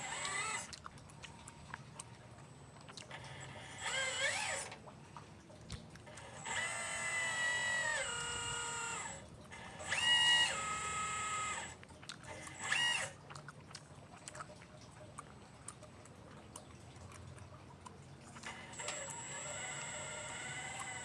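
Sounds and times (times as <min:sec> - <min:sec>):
electric motors whining: 0:00.0 - 0:00.7, 0:03.1 - 0:04.8, 0:06.0 - 0:13.2, 0:18.4 - 0:21.0.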